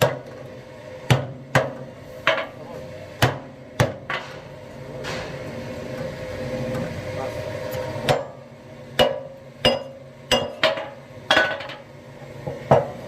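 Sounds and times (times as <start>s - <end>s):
steady hum: 0.0s - 13.0s
hammer striking metal: 9.0s - 11.8s.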